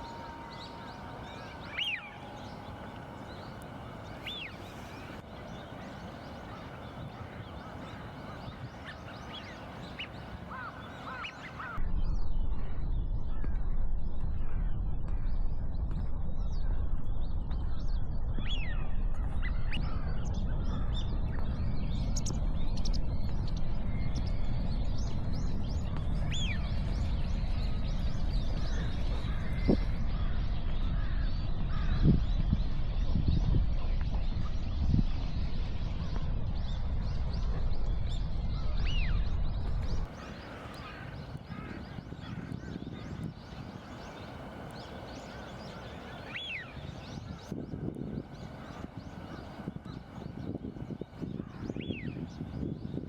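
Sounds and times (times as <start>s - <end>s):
birds chirping: 0.0s - 11.8s, 25.6s - 53.0s
steady low rumble: 0.0s - 53.0s.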